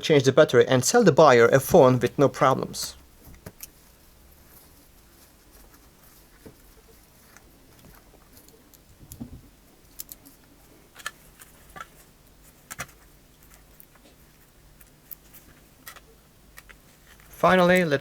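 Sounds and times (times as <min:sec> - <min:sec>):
small clicks of tools: 0:09.9 - 0:10.3.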